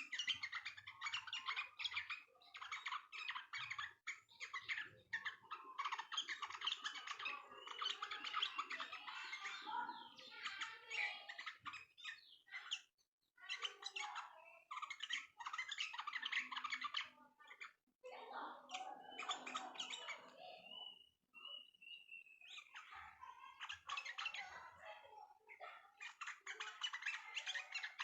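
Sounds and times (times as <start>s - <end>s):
songbirds chirping in chorus: 0.0s - 28.0s.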